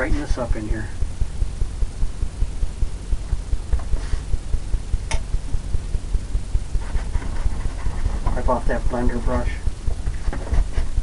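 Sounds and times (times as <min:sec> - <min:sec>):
sharp click: 0:05.1 - 0:05.3.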